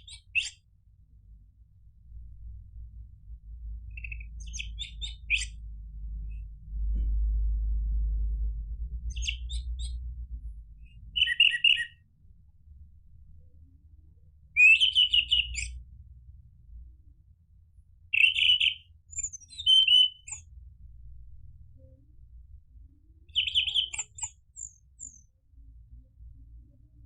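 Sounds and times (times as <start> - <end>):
low rumble: 0.8 - 11.4, 20.4 - 23.3
thrush singing high chirps: 18.2 - 20.4.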